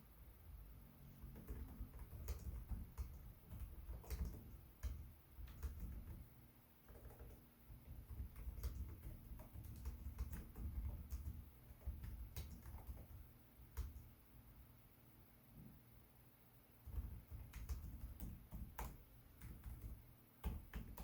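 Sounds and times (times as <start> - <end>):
laptop keyboard typing: 1.2 - 14.1, 16.8 - 21.0.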